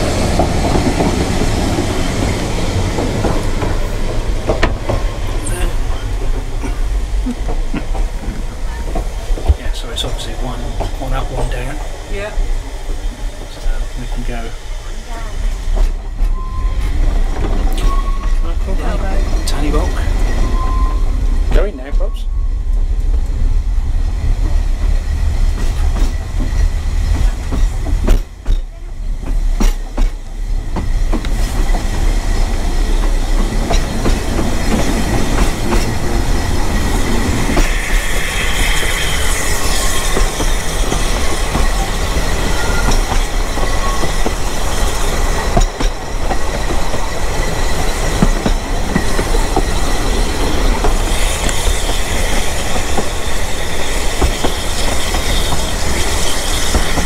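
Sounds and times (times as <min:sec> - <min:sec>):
train wheels clattering on rail joints: 0:00.0 - 0:20.9, 0:24.3 - 0:57.0
wheel flanges squealing: 0:16.2 - 0:22.6, 0:32.3 - 0:57.0.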